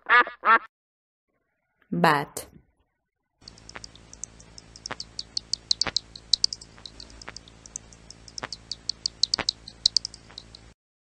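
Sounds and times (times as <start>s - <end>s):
fruit bats chirping: 3.4s - 10.8s
sharp clicks: 3.4s - 10.8s.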